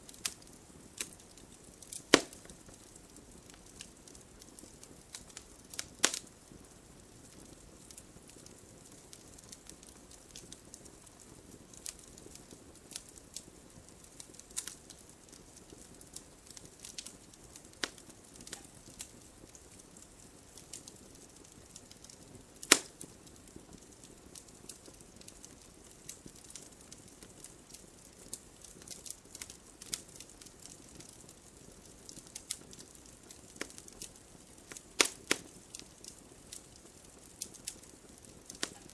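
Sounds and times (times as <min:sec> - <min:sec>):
campfire crackling: 0:00.0 - 0:38.9
faint hiss of burning: 0:00.0 - 0:38.9
sharp pops of fire: 0:00.1 - 0:38.9.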